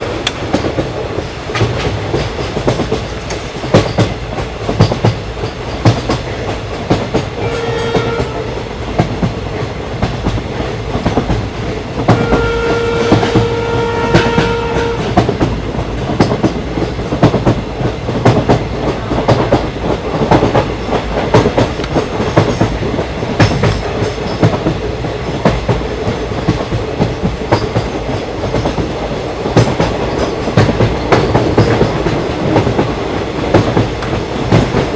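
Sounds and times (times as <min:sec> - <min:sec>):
train wheels clacking on rails: 0:00.0 - 0:34.9
train horn: 0:07.4 - 0:08.6, 0:12.1 - 0:15.2.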